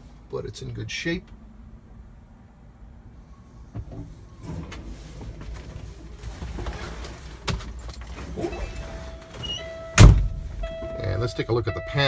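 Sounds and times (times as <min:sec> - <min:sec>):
low rumble in truck cab: 0:00.0 - 0:12.0
handling clicks and creaks: 0:03.8 - 0:11.1.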